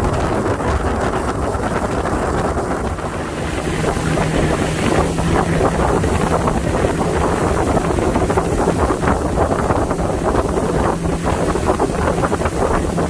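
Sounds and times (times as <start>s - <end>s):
wind buffeting microphone: 0.0s - 13.0s
steady low hum: 2.8s - 13.0s.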